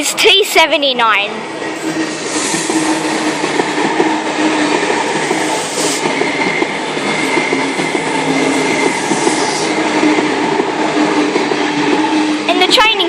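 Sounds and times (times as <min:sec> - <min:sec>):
multi-tone train whine: 0:00.0 - 0:13.0
train rumble and wheel clatter: 0:00.0 - 0:13.0.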